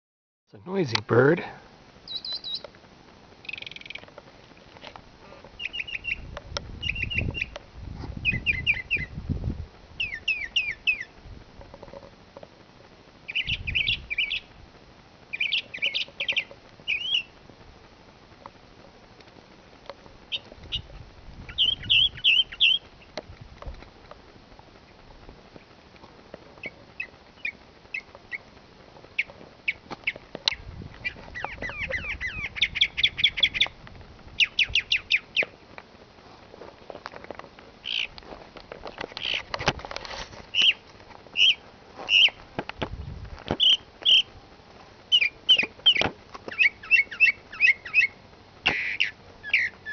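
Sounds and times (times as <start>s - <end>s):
bird calling sharp notes: 2.1s - 2.7s, 3.4s - 4.1s, 5.6s - 7.6s, 8.2s - 9.2s, 10.0s - 11.1s, 13.3s - 14.5s, 15.3s - 17.3s, 21.5s - 23.1s, 29.2s - 33.8s, 34.4s - 35.5s, 37.8s - 38.2s, 40.5s - 40.8s, 41.4s - 42.4s, 43.5s - 44.3s, 45.1s - 49.9s.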